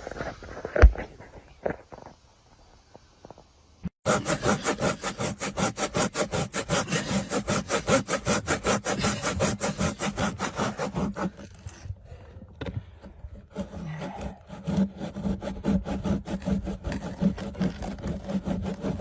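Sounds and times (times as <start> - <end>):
rhythmic rasping strokes: 4.0 - 11.5.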